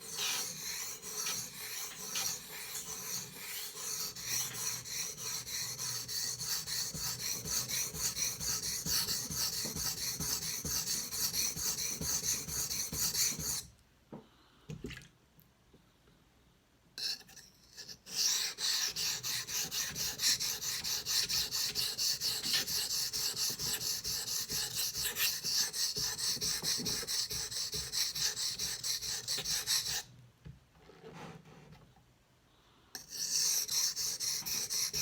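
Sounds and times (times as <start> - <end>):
knife sharpening on whetstone: 0.0 - 13.6, 33.0 - 35.0.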